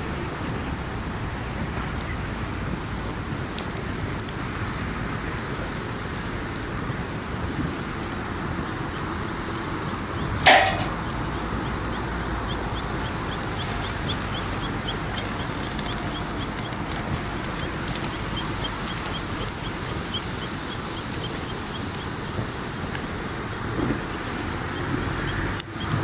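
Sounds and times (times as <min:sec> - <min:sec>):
campfire crackling: 0:00.0 - 0:26.0
steady rushing background: 0:09.6 - 0:23.2
loud sharp sound: 0:10.4 - 0:11.0.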